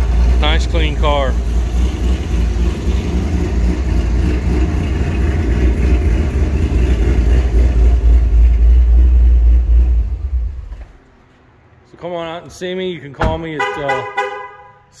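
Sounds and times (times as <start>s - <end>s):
car engine idling with deep rumble: 0.0s - 11.0s.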